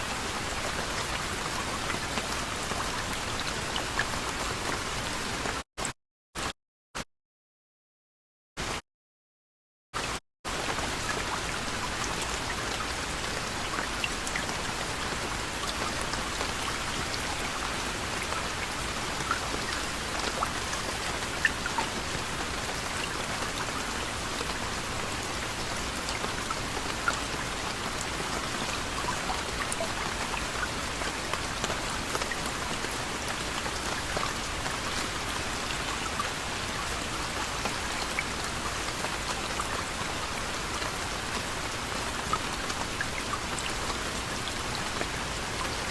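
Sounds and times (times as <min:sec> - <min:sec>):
gentle rain falling: 0:00.0 - 0:05.6, 0:10.0 - 0:45.9.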